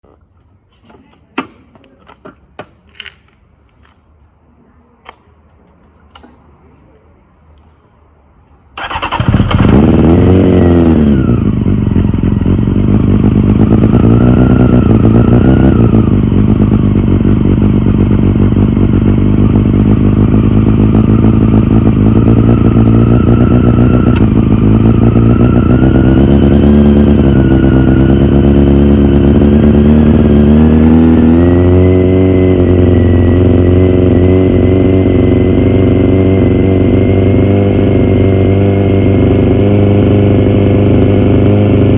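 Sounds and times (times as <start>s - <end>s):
motorcycle engine idling: 8.8s - 41.9s.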